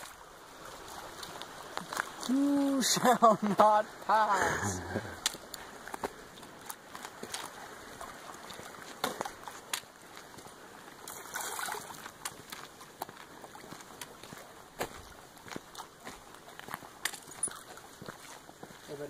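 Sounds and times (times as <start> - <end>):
water trickling: 0.0 - 19.0
water splash: 11.0 - 12.3.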